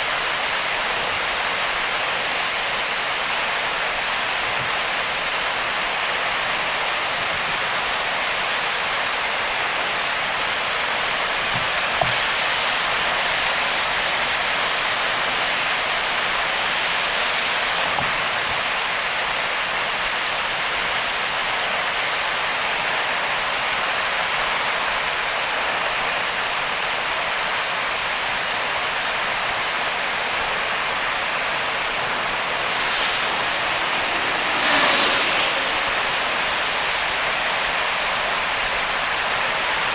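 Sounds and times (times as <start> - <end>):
rain and tyre spray hiss: 10.2 - 22.2, 30.0 - 39.9.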